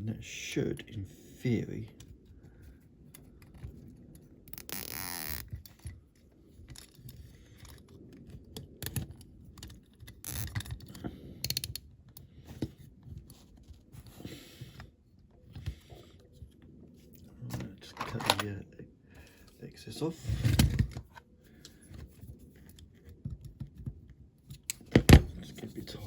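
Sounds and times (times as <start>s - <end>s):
handling clicks and scrapes: 1.8s - 18.6s, 19.3s - 26.0s
cable tie ratcheting zip: 4.5s - 5.9s, 10.1s - 11.8s.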